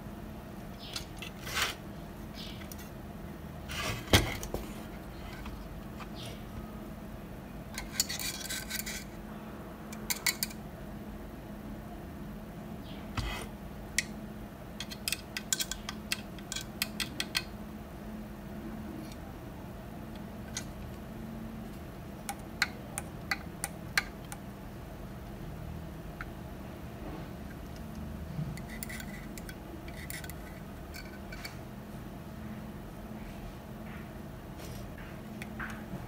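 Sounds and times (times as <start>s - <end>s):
steady low hum: 0.0s - 36.0s
small tools clicking and tapping: 9.9s - 10.6s, 14.8s - 17.5s, 22.2s - 24.5s, 27.5s - 31.6s.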